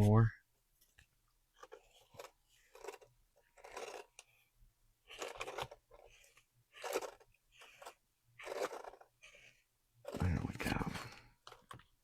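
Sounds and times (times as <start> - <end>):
scratchy scraping strokes: 1.6 - 4.2, 5.1 - 10.9.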